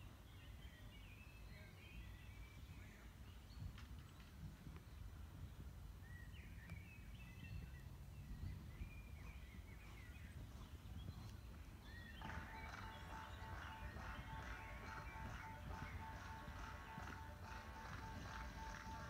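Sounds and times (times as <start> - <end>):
small birds chirping: 0.0 - 19.0
low wind rumble: 0.1 - 19.0
music playing: 12.2 - 19.0.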